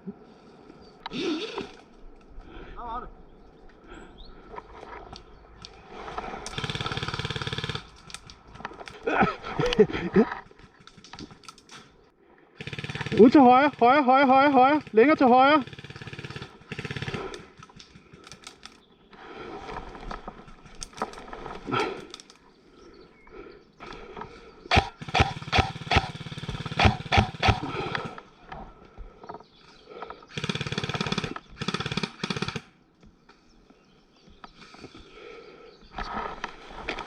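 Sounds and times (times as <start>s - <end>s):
toy guns firing rapid bursts: 6.5s - 8.0s, 12.6s - 17.6s, 24.7s - 27.8s, 30.3s - 32.7s.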